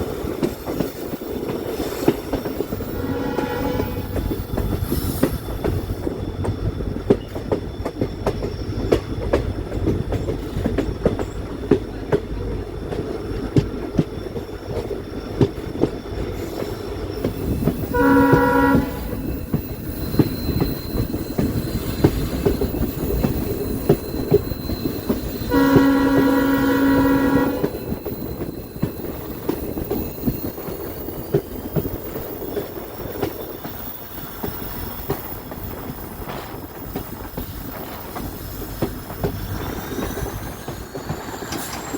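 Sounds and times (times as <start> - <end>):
train rumbling on rails: 0.0 - 41.9
locomotive horn blasts: 3.0 - 4.3, 17.9 - 19.2, 25.5 - 27.8.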